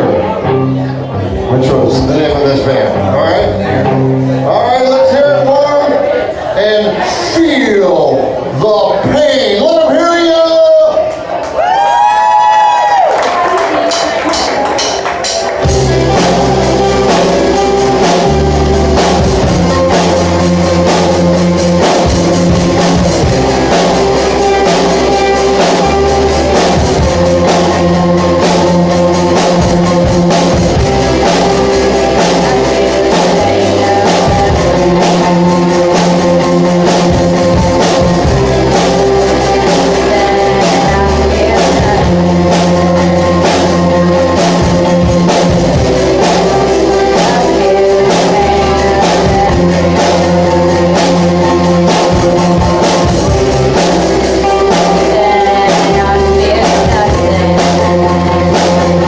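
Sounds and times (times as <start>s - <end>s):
rock band playing live: 0.0s - 59.0s
drum kit beat: 13.4s - 59.0s
person singing: 15.6s - 59.0s.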